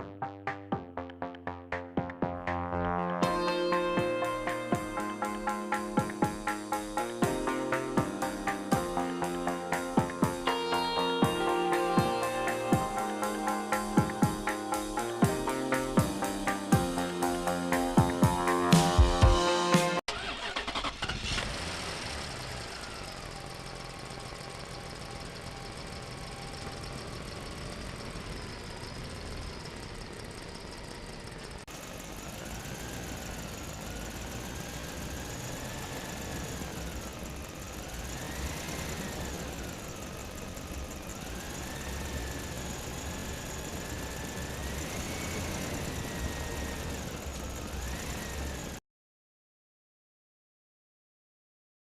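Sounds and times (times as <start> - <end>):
burst of music: 3.1 - 20.0
toy vehicle motor whining: 32.1 - 48.8.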